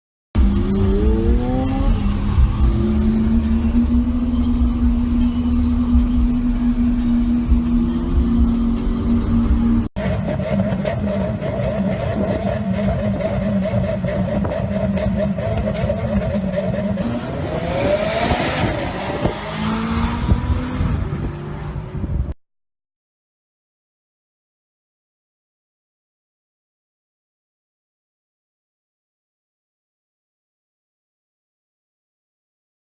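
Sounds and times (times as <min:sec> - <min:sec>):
music playing: 0:00.4 - 0:09.9
car engine revving: 0:00.4 - 0:22.1.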